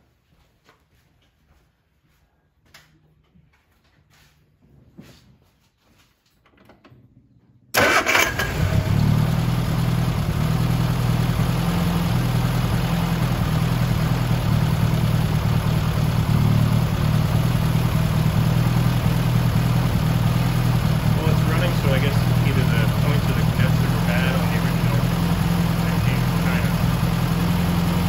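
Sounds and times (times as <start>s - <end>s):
car engine starting and idling: 7.7s - 28.0s.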